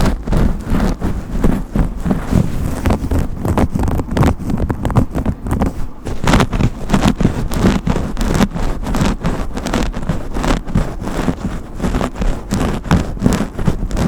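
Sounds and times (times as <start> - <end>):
brush rubbing and scraping: 0.0 - 14.0.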